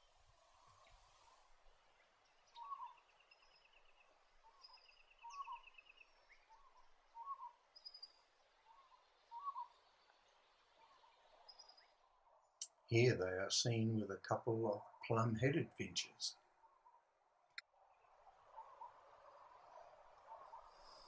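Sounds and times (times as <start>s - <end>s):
bird repeating low notes: 2.4s - 12.0s
buzzy bird trills: 2.5s - 3.7s, 4.4s - 8.1s, 8.7s - 9.8s.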